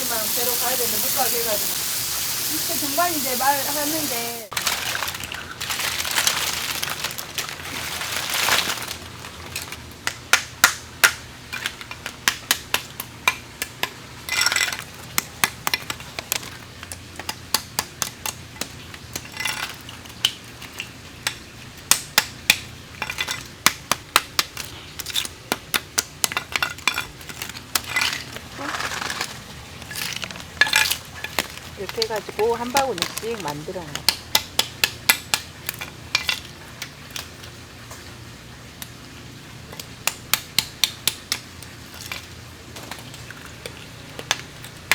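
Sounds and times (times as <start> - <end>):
oyster shells clattering: 13.2 - 37.4.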